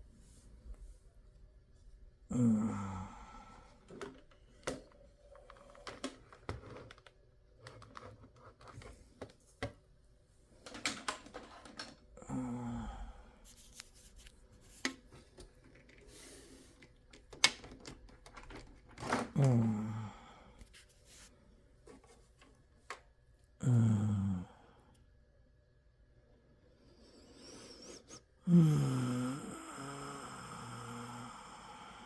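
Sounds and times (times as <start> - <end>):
person sighing: 2.3 - 4.0, 12.2 - 13.9, 19.3 - 20.7, 23.6 - 25.0, 28.4 - 32.0.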